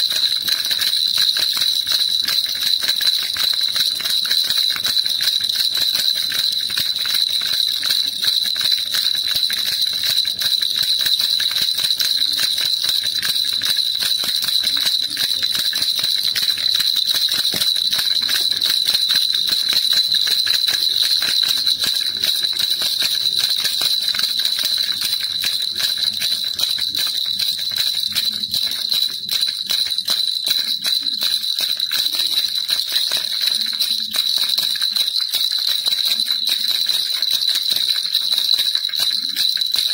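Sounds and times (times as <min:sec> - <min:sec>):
baby rattle shaking: 0:00.0 - 0:39.9.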